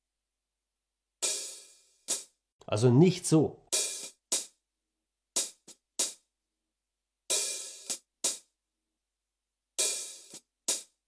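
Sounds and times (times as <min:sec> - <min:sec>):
hi-hat struck with stick: 0:01.2 - 0:02.3, 0:03.7 - 0:04.6, 0:05.4 - 0:06.2, 0:07.3 - 0:08.5, 0:09.8 - 0:11.0.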